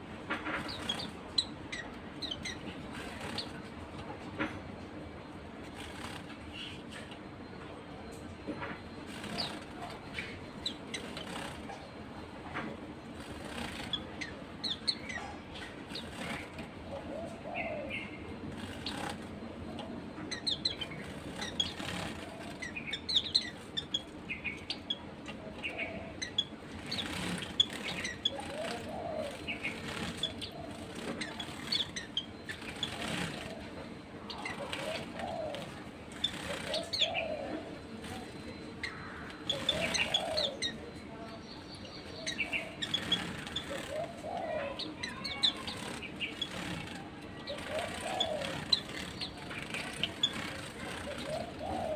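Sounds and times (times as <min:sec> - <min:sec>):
birds chirping: 0:00.0 - 0:51.9
wings fluttering: 0:00.4 - 0:03.7, 0:05.6 - 0:07.1, 0:09.0 - 0:11.9, 0:13.1 - 0:16.7, 0:18.5 - 0:19.4, 0:20.4 - 0:24.9, 0:26.3 - 0:37.1, 0:38.0 - 0:40.5, 0:42.5 - 0:51.9.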